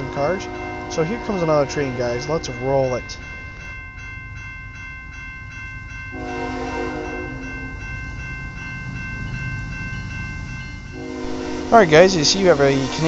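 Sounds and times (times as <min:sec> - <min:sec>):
locomotive air horn chord: 0:00.0 - 0:02.3, 0:06.2 - 0:07.5, 0:11.0 - 0:13.0
bell dinging rapidly: 0:00.0 - 0:11.2
low train rumble: 0:00.0 - 0:13.0.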